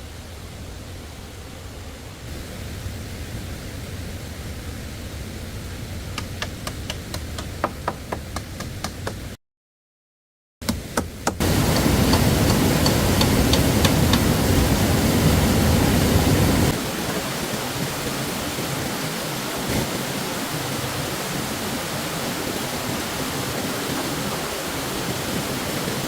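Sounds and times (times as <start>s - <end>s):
stream water rushing: 0.0s - 9.3s, 11.4s - 26.0s
sharp knocks on bamboo: 6.2s - 9.2s.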